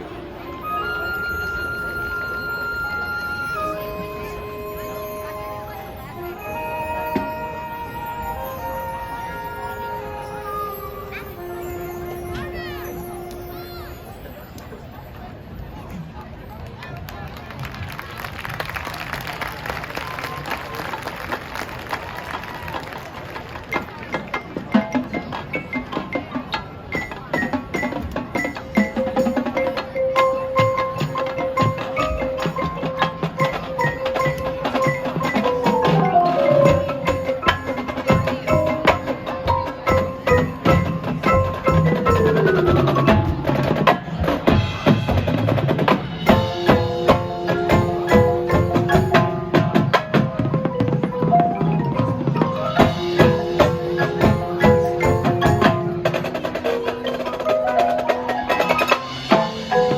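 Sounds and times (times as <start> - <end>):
held wind instrument notes: 0.0 - 15.9, 23.8 - 59.9
mallet percussion: 0.0 - 16.1, 23.6 - 59.9
drumline striking rapidly: 17.6 - 59.9.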